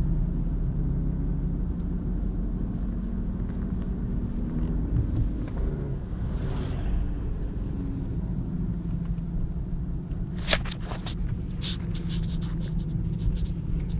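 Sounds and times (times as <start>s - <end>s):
car engine running: 0.0s - 13.9s.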